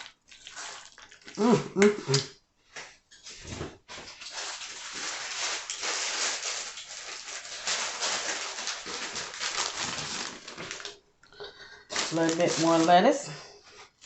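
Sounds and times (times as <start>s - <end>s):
lettuce rustling and crackling: 3.9s - 14.0s.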